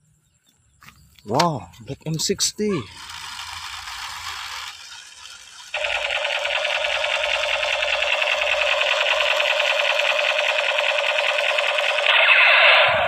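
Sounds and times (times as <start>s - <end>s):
toy rifle rapid-fire buzzing rattle: 2.7s - 13.0s.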